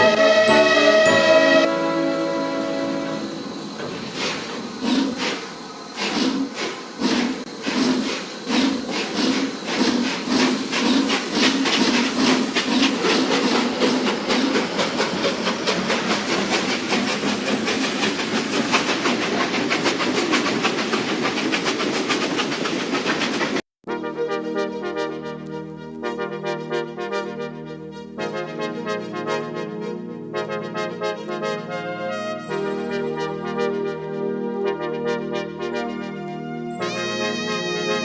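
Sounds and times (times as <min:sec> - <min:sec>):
steam hissing: 0:00.0 - 0:23.6
steam locomotive chuffing: 0:00.0 - 0:23.6.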